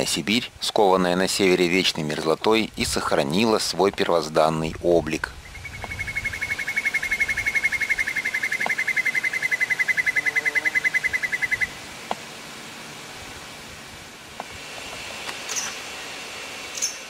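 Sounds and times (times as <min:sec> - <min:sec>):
soft outdoor hiss: 0:00.0 - 0:17.0
bird fast trill: 0:05.4 - 0:11.8, 0:16.8 - 0:17.0.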